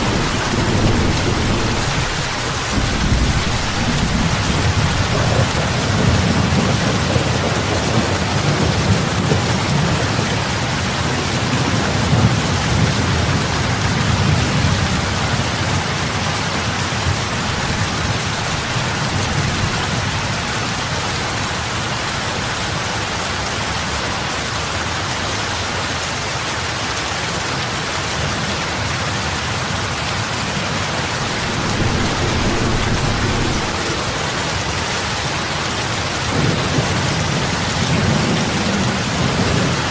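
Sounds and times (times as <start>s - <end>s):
heavy rain on water: 0.0s - 39.9s
low rumble: 31.3s - 34.9s.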